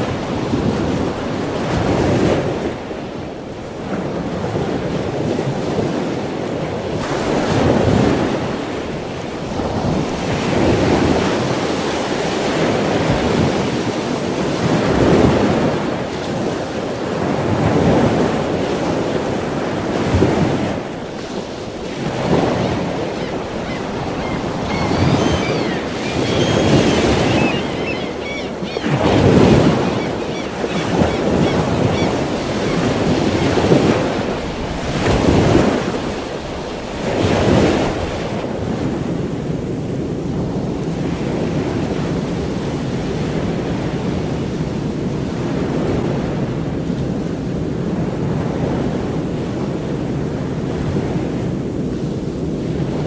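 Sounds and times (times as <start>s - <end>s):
waves breaking: 0.0s - 51.4s
faint bird chirps: 23.1s - 29.0s.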